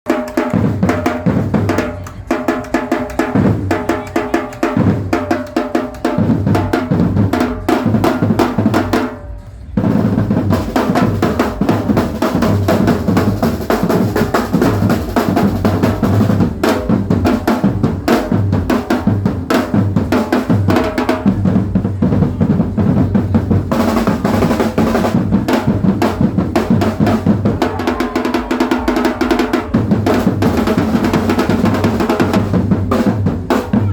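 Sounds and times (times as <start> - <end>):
drum kit playing a fast beat: 9.8 - 33.9.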